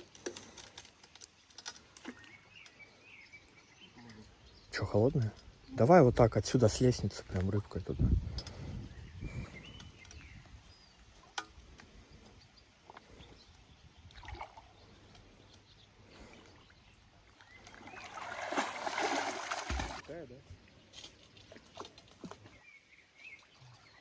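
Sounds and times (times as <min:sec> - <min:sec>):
water splashing and sloshing: 0:11.0 - 0:24.0.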